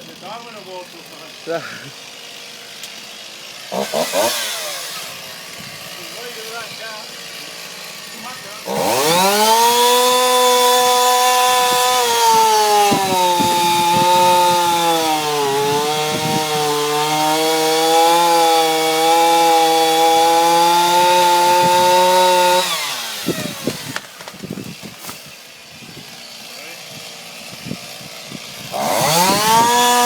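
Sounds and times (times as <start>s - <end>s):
chainsaw cutting into tree: 0.0s - 30.0s.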